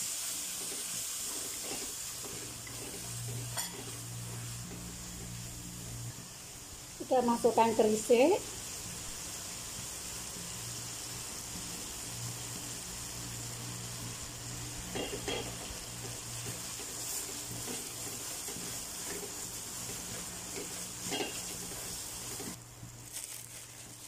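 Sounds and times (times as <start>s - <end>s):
paste sizzling in a wok: 0.0s - 24.0s
wooden spatula scraping a pan: 0.5s - 5.3s, 15.0s - 22.6s.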